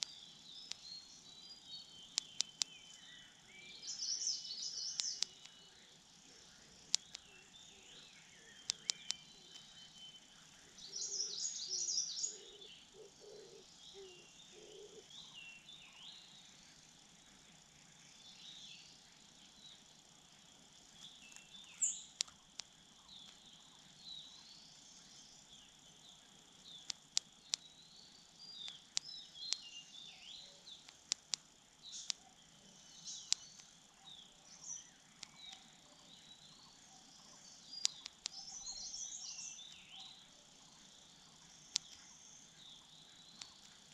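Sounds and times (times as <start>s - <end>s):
sharp clicks: 0.0s - 1.0s, 2.1s - 3.0s, 4.8s - 5.6s, 6.8s - 7.4s, 8.6s - 10.1s, 21.0s - 23.4s, 26.7s - 27.7s, 28.6s - 29.7s, 30.7s - 32.3s, 33.1s - 33.8s, 35.2s - 35.7s, 37.7s - 38.6s, 41.7s - 42.0s, 43.3s - 43.8s
birds chirping: 0.0s - 43.9s
faint insect trill: 0.0s - 43.9s.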